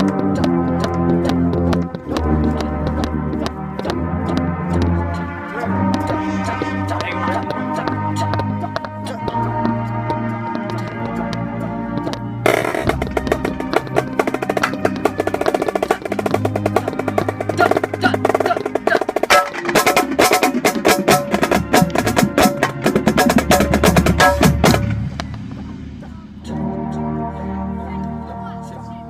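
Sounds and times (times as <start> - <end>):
band chords: 0.0 - 29.0
snare drum rolls: 12.0 - 26.0.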